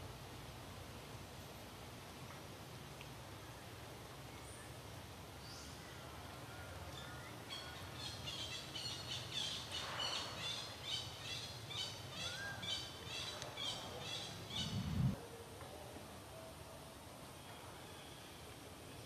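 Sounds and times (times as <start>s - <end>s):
bird chirping: 7.0s - 15.2s
rising whistle: 14.5s - 15.2s.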